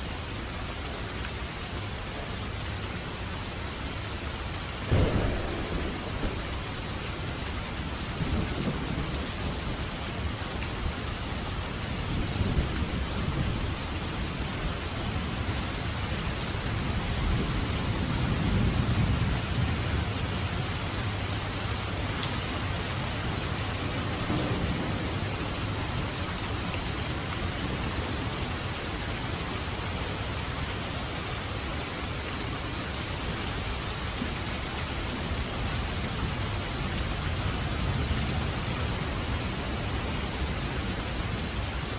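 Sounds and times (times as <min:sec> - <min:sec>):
rain drumming on a roof: 0:00.0 - 0:41.9
rolling thunder: 0:04.8 - 0:21.2, 0:23.0 - 0:28.6.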